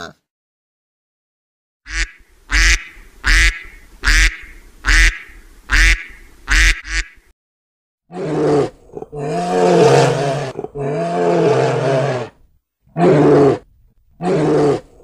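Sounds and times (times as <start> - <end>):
duck quacking: 1.9 - 7.2.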